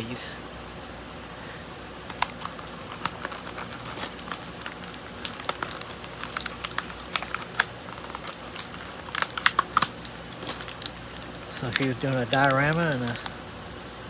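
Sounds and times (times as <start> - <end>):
plastic packaging crinkling: 2.0 - 14.0.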